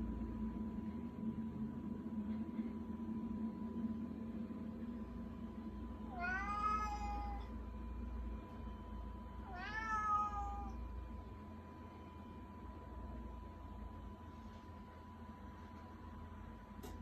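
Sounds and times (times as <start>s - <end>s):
cat meowing: 6.1s - 7.5s, 9.5s - 10.8s.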